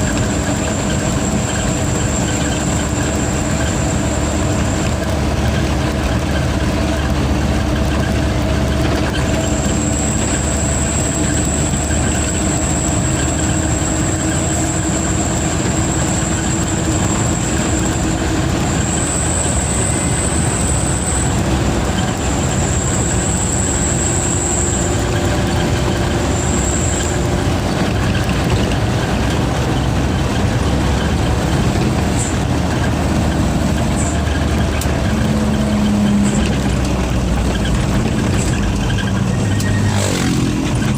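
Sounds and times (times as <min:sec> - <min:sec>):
truck diesel engine running: 0:00.0 - 0:40.9
turbocharger whistle: 0:08.9 - 0:28.6, 0:38.3 - 0:40.9.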